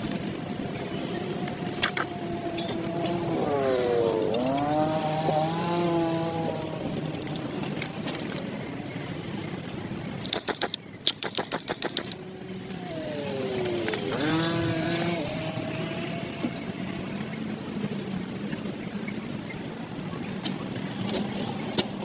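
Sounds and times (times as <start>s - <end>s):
traffic noise: 0.0s - 22.0s
vehicles passing: 0.0s - 22.0s
rapid sharp clicks: 6.5s - 13.1s.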